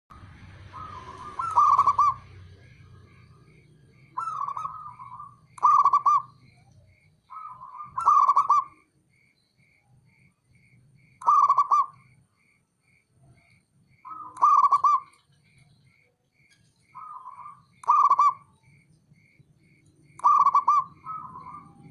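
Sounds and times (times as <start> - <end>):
dove cooing: 0.2 - 8.9, 11.2 - 12.1, 14.0 - 15.3, 16.9 - 18.8, 20.1 - 21.9.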